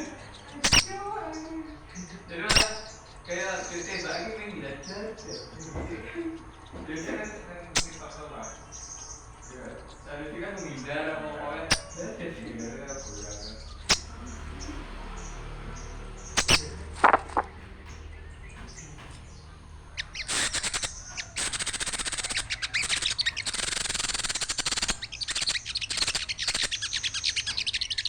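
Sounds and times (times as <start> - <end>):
small birds twittering: 0.0 - 28.0
sharp knocks: 13.7 - 26.7.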